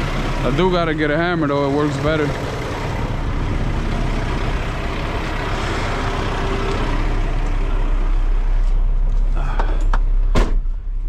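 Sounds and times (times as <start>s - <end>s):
heavy truck engine humming: 0.0s - 11.0s.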